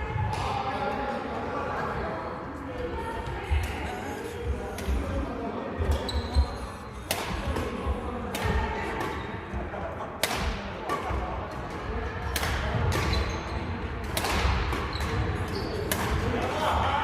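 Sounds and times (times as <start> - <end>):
racket striking shuttlecock: 7.1 - 9.2, 10.2 - 11.2, 14.0 - 15.2, 15.8 - 16.3.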